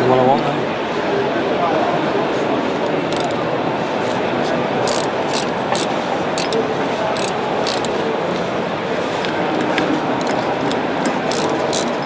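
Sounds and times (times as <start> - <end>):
hall hubbub: 0.0 - 12.0
metallic clicks of hand tools: 3.1 - 3.4, 4.9 - 6.6, 7.2 - 8.0, 11.1 - 12.0.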